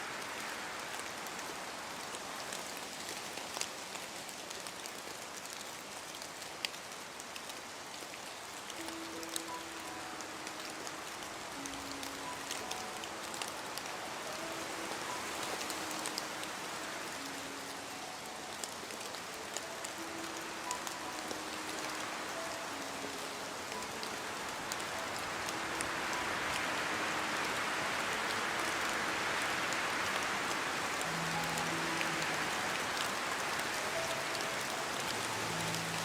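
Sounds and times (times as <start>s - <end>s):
steady rain falling: 0.0s - 36.0s.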